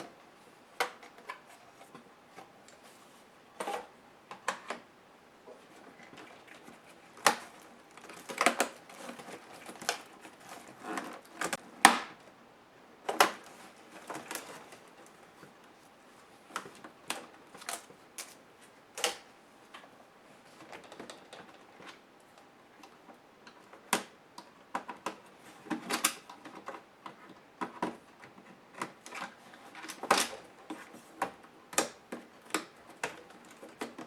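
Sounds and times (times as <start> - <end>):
plastic laptop parts clicking: 19.0 - 19.3, 23.6 - 28.0.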